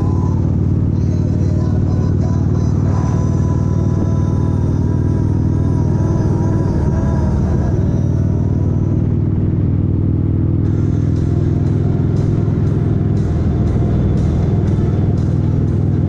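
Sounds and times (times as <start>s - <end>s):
background music: 0.0s - 16.0s
motorcycle engine running: 0.0s - 16.0s
ticking beat: 10.7s - 16.0s.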